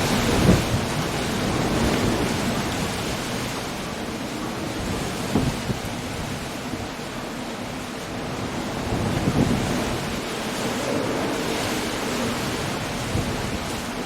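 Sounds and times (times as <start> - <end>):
heavy rain: 0.0 - 14.0
wind: 0.0 - 14.0.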